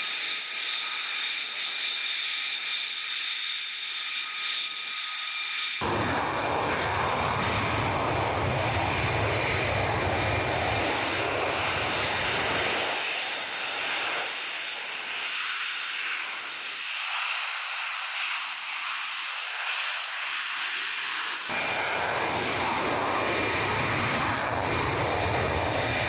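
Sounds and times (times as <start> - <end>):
jet engine roar: 0.0 - 26.0.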